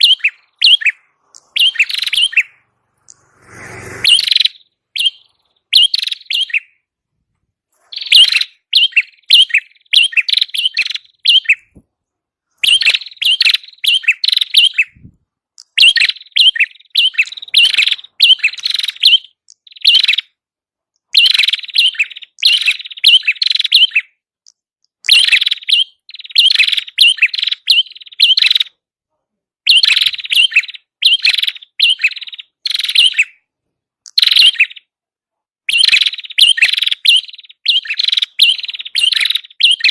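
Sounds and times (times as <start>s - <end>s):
songbird chattering high chirps: 0.0s - 6.8s, 7.8s - 11.8s, 12.6s - 20.3s, 21.0s - 24.1s, 25.0s - 28.8s, 29.7s - 33.4s, 34.0s - 34.9s, 35.7s - 39.9s.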